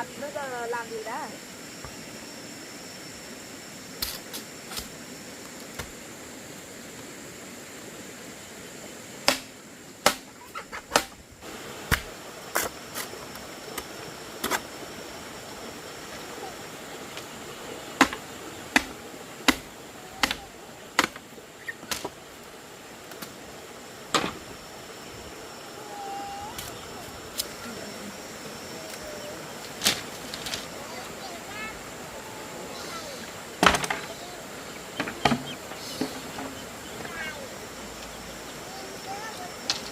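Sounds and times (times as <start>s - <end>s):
steady hiss: 0.0s - 39.9s
thin high tone: 24.5s - 39.9s.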